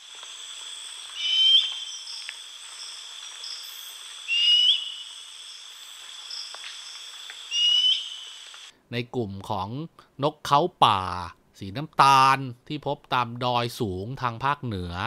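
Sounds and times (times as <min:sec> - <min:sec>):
crickets and insects trilling: 0:00.0 - 0:08.7
bird whistled call: 0:01.2 - 0:02.3, 0:03.6 - 0:05.2, 0:07.5 - 0:08.4.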